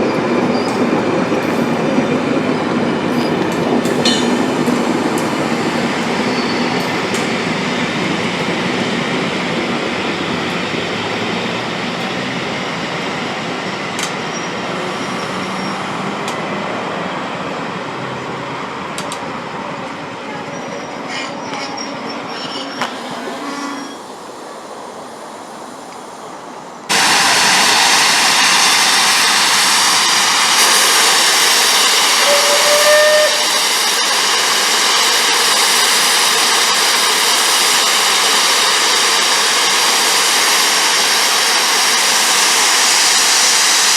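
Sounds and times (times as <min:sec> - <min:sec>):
steam train running on rails: 0:00.0 - 0:43.9
wheel clicks and squeals: 0:20.4 - 0:24.1.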